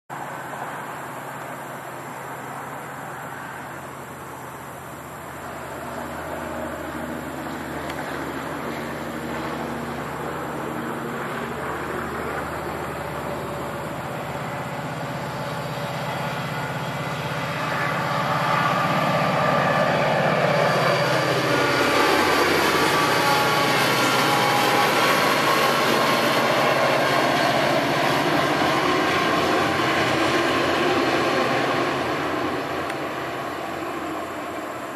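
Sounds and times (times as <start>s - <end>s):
diesel locomotive engine drone: 0.1s - 34.9s.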